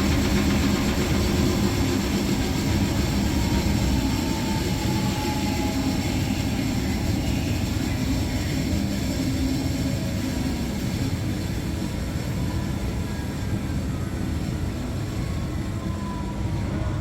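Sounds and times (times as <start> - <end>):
washing machine drum spinning: 0.0 - 5.8.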